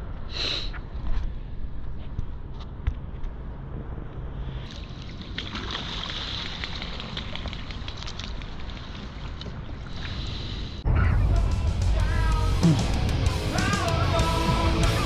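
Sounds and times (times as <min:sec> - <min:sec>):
rock music with electric guitar: 0:11.3 - 0:15.0.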